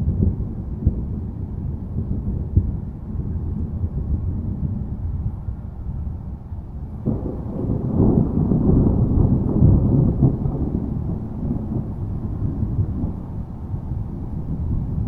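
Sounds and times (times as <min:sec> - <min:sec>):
low rolling thunder: 0:00.0 - 0:15.0.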